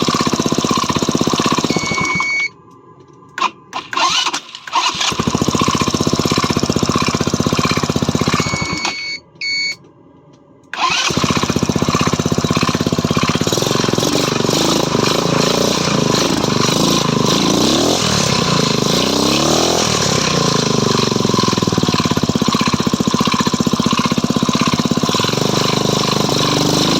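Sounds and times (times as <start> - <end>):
scooter engine running with knock: 0.0 - 2.2, 5.2 - 8.8, 11.1 - 26.9
short beep: 1.7 - 2.6, 8.3 - 9.8.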